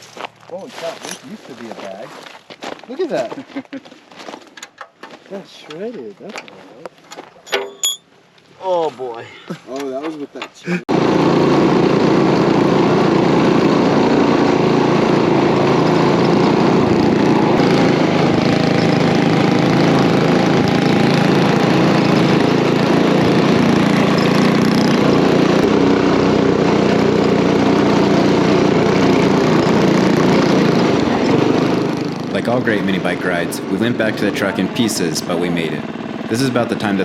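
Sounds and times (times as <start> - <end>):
small mini bike engine running: 10.9 - 37.0.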